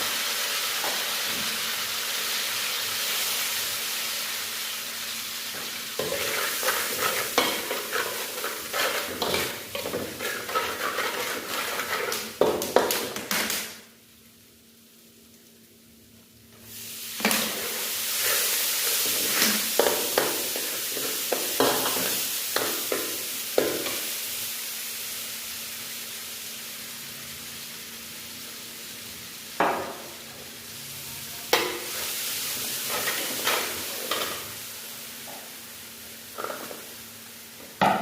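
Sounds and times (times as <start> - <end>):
food sizzling in a pan: 0.0 - 38.0
utensil knocking and scraping pan: 5.6 - 13.6.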